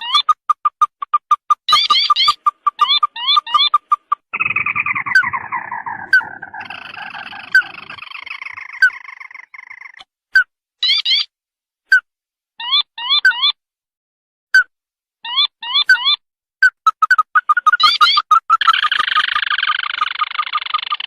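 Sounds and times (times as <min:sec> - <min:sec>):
crake calls: 0:00.0 - 0:10.1, 0:15.7 - 0:21.0.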